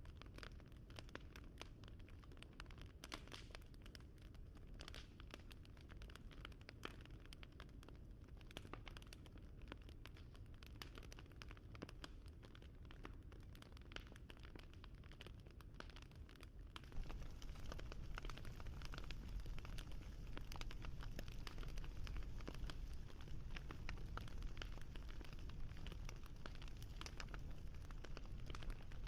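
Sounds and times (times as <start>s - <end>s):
fire crackling: 8.2s - 29.0s
low steady rumble: 16.8s - 29.0s.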